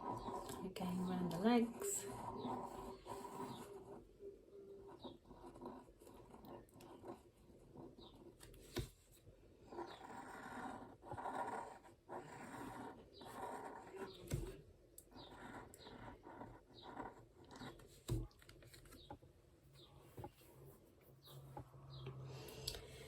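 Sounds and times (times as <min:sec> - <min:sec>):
pen scratching on paper: 0:00.0 - 0:18.8.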